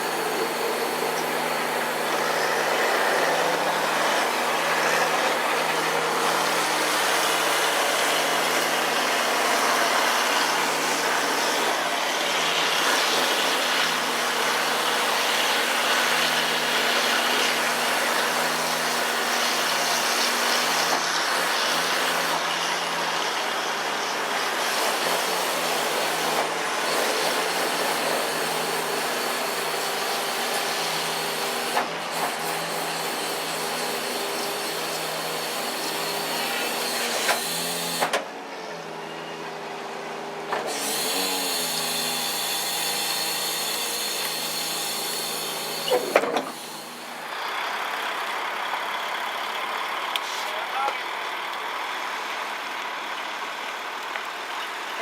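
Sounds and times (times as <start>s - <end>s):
truck low hum: 45.9s - 55.0s.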